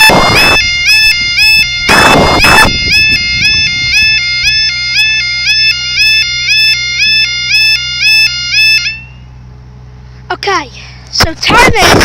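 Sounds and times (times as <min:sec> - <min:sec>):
level crossing two-tone alarm: 0:00.0 - 0:09.3.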